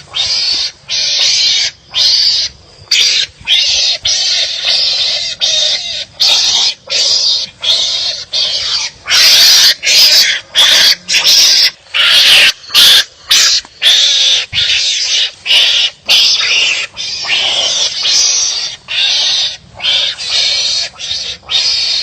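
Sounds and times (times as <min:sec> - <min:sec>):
animals barking harshly: 0:00.0 - 0:22.0.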